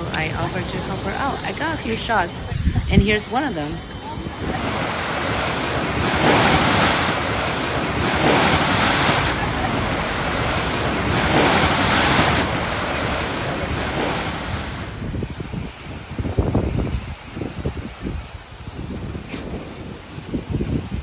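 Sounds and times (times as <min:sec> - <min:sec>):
wind buffeting microphone: 0:00.0 - 0:21.0
surf breaking on shore: 0:04.2 - 0:18.2.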